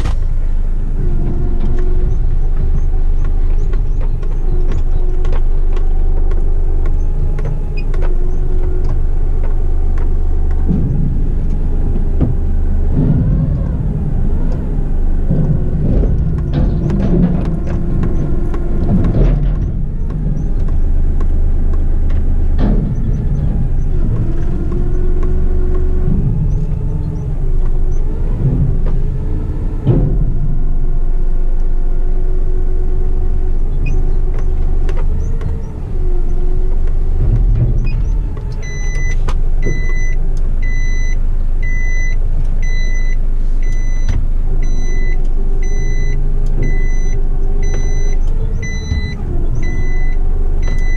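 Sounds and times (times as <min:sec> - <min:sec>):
knocks and rattles: 0:00.0 - 0:45.8
truck diesel engine running: 0:00.0 - 0:50.9.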